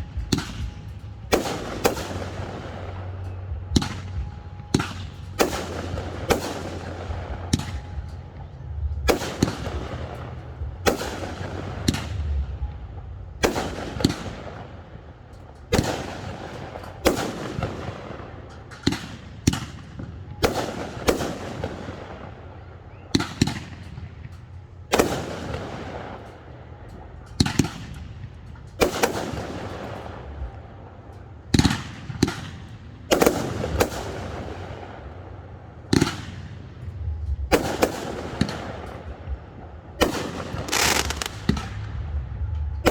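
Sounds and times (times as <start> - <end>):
firework shells bursting: 40.0 - 41.8.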